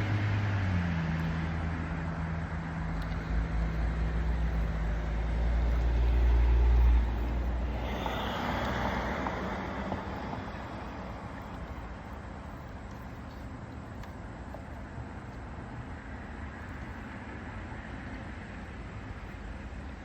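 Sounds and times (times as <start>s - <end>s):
car engine humming: 0.0s - 20.0s
passing vehicle road noise: 0.0s - 20.0s.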